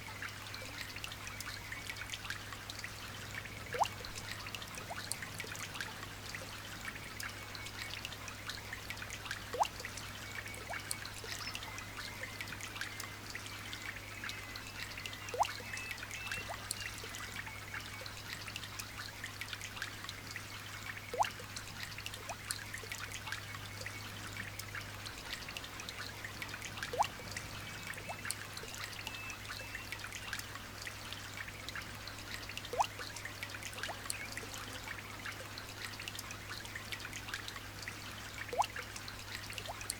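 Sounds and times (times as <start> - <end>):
light rain pattering: 0.0 - 39.9
single drip plinking: 15.3 - 16.8, 21.1 - 21.4, 32.7 - 33.0, 38.5 - 38.8.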